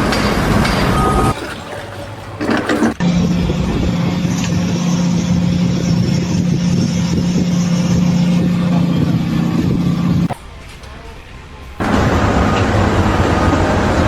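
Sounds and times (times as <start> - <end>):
engine droning hum: 0.0 - 14.0.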